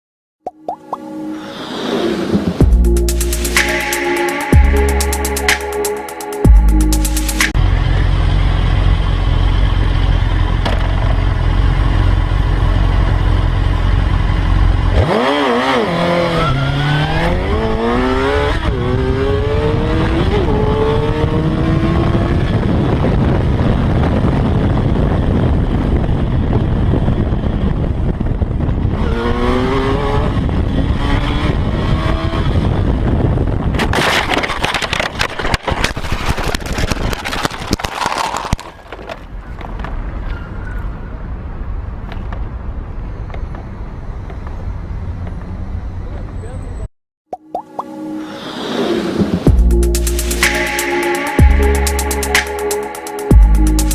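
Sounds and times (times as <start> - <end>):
heavy wind rumble: 1.3 - 2.9, 17.3 - 37.8
motorcycle engine accelerating: 7.4 - 33.7.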